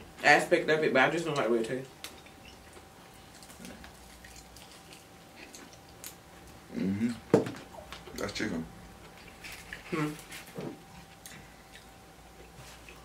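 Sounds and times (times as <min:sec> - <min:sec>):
faint chewing: 0:01.3 - 0:08.4, 0:09.0 - 0:13.0
person humming: 0:06.7 - 0:07.3.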